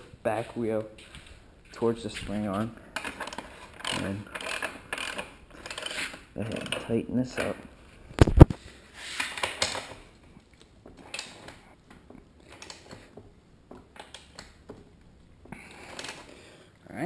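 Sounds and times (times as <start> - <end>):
socket wrench ratcheting: 3.0 - 6.9.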